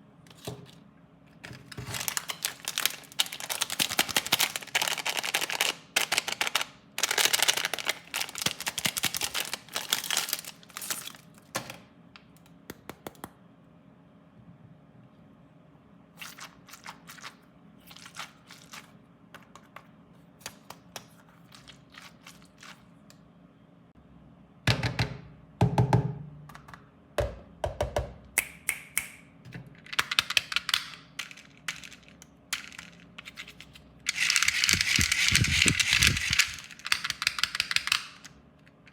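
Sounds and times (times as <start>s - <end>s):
plastic wrappers crinkling: 1.6s - 11.6s, 30.0s - 38.2s.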